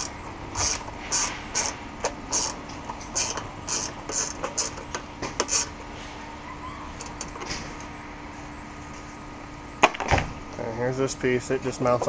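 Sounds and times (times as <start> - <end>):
ratchet wrench clicking: 0.0 - 4.8.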